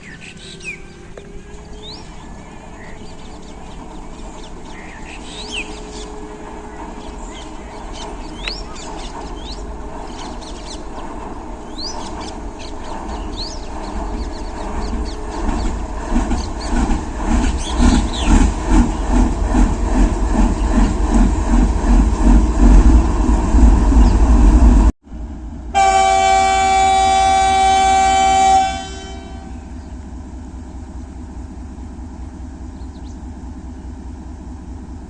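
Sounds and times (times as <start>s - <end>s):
birds chirping: 0.0s - 22.5s, 29.2s - 31.4s, 32.1s - 34.4s
diesel locomotive engine rumble: 0.0s - 35.0s.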